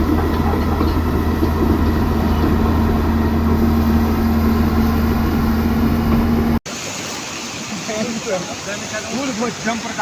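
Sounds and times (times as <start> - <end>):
engine running steadily: 0.0 - 6.6.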